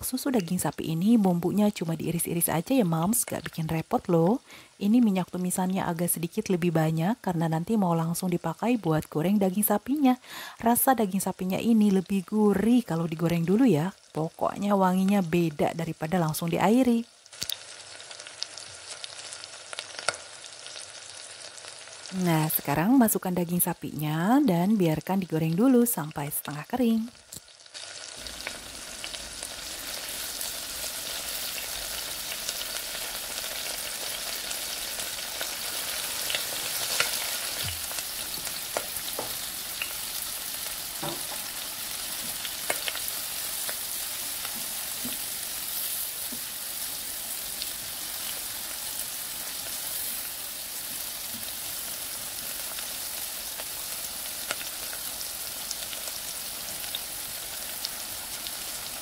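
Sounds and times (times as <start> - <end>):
beef sizzling in hot oil: 7.9 - 59.0.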